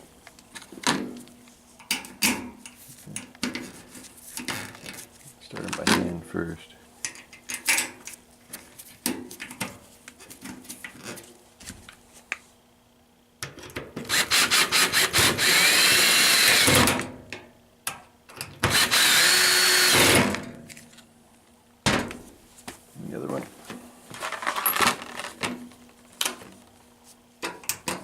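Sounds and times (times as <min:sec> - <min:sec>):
drill driving screws into metal: 0:14.0 - 0:17.1, 0:18.6 - 0:20.5.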